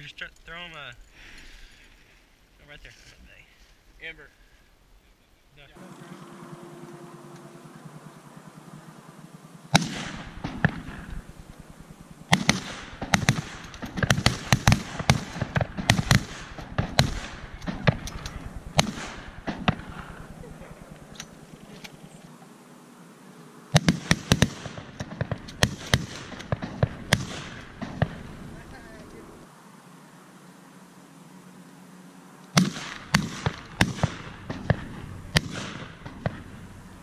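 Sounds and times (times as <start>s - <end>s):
shotgun shots: 9.7s - 20.4s, 23.7s - 29.0s, 32.5s - 36.7s.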